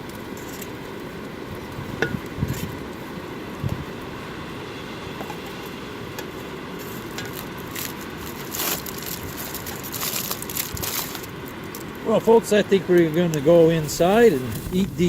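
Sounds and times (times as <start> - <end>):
wood crackling in campfire: 7.3 - 15.0
sharp pops of fire: 13.3 - 15.0
steady low rush: 13.4 - 15.0.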